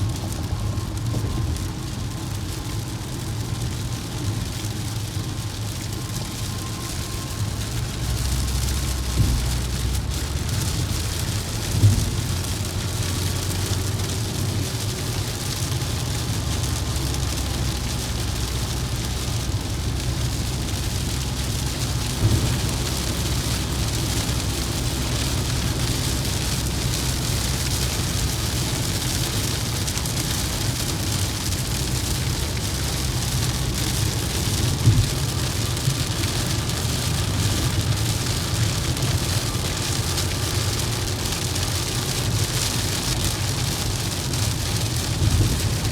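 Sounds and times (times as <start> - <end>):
rain and wet tyre spray: 0.0 - 45.9
road rumble: 0.0 - 45.9.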